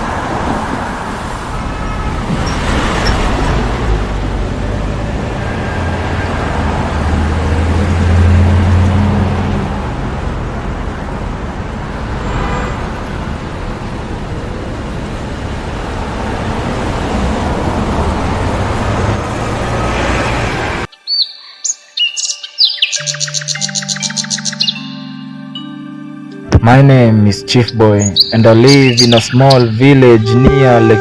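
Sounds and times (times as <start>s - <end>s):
vehicle engine hum: 0.0s - 20.9s
road traffic noise: 0.0s - 21.0s, 22.7s - 31.0s.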